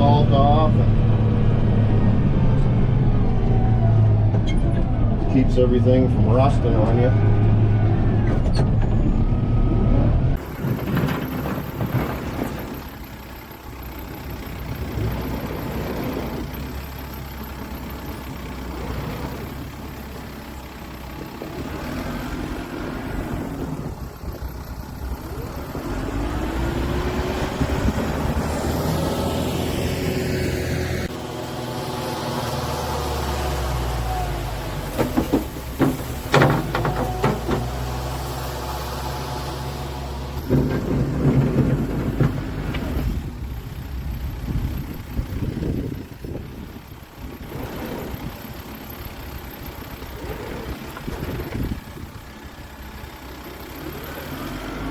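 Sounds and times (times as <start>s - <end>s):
tractor diesel engine running: 0.0s - 54.9s
sharp knocks: 34.9s - 37.8s.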